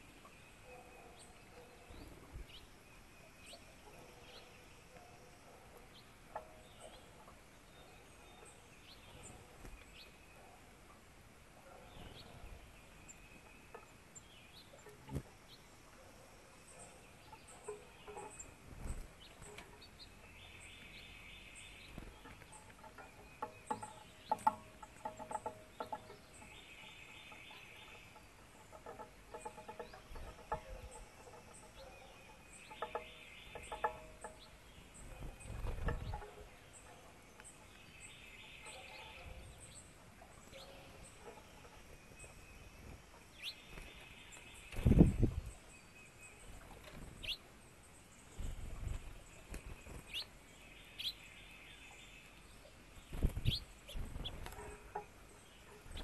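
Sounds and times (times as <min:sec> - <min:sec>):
chattering bird calls: 0:16.6 - 0:45.4, 0:48.2 - 0:52.4, 0:53.0 - 0:56.0
bird song phrase: 0:19.2 - 0:56.0.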